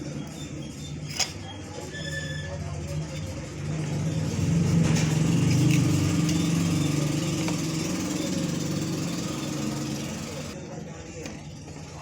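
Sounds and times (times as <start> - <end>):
engine humming: 3.8 - 10.6.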